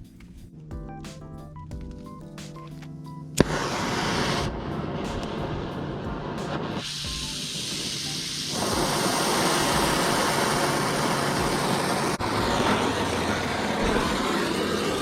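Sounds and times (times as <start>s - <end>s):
torch flame hissing roar: 3.4s - 15.0s.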